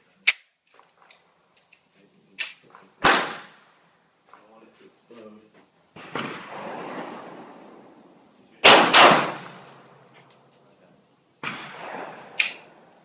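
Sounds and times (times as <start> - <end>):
pistol shots echoing: 3.0 - 3.6, 6.0 - 7.6, 8.6 - 9.8, 11.4 - 12.9.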